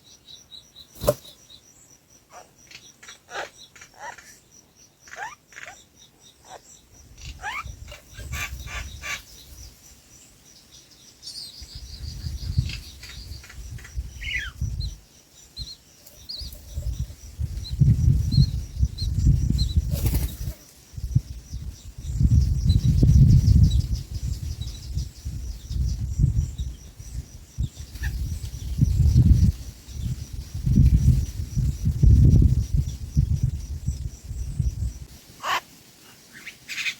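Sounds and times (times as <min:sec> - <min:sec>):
bird wings flapping: 0:01.0 - 0:01.4, 0:19.9 - 0:20.6.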